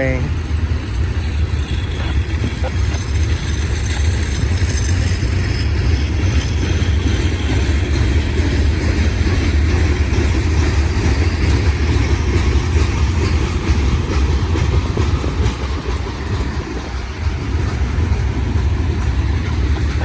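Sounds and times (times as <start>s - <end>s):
freight train rumbling: 0.0s - 20.0s
wheels clicking over rail joints: 0.3s - 20.0s.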